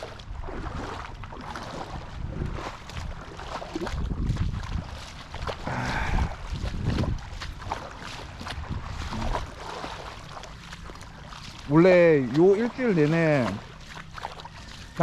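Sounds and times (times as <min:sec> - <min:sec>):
wind buffeting microphone: 0:00.0 - 0:10.3
waves washing on beach: 0:00.0 - 0:15.0.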